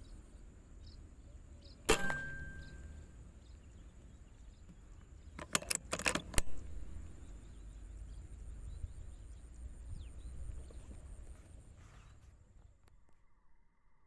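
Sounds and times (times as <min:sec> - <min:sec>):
sharp metallic clicks and clinks: 0:01.9 - 0:03.1, 0:05.4 - 0:06.9
steady low rumble: 0:06.4 - 0:11.8.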